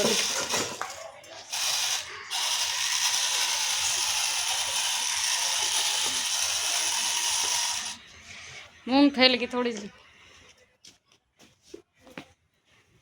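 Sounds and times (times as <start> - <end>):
toy electric motor whirring: 0.0 - 8.1.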